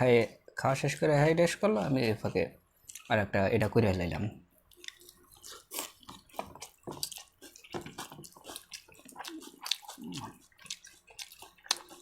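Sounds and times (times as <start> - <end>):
food being chewed: 2.8 - 3.1, 4.6 - 12.0.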